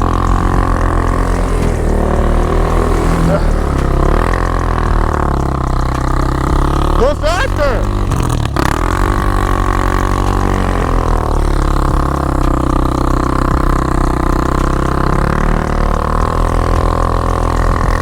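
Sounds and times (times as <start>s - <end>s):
quad engine revving high: 0.0s - 18.0s.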